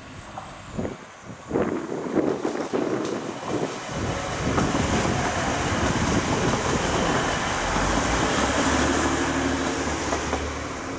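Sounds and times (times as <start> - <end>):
train wheels rumbling on rails: 0.0 - 10.9
diesel engine hum: 3.9 - 10.9.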